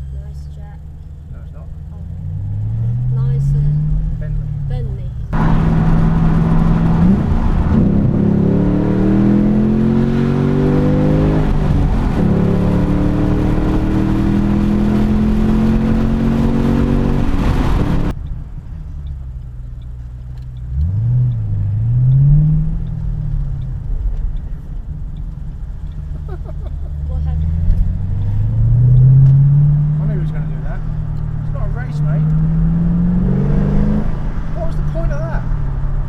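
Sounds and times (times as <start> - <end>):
car engine accelerating hard: 0.0 - 36.0.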